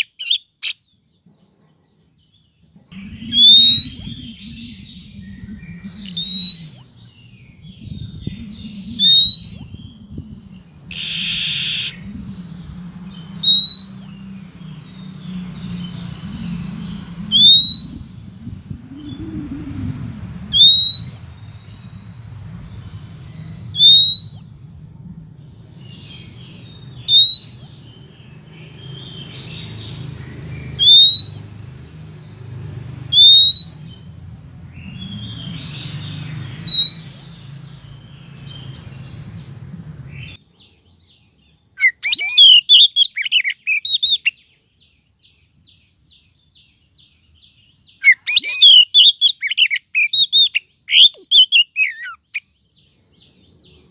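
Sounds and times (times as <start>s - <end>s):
rapid jumbled chirps: 0.0s - 40.4s
low steady hum: 2.8s - 13.5s, 14.1s - 28.6s
loud rising whistle: 3.0s - 6.9s, 10.9s - 12.2s, 13.4s - 14.2s, 16.4s - 21.4s, 23.7s - 24.7s, 30.8s - 31.5s, 33.1s - 33.9s.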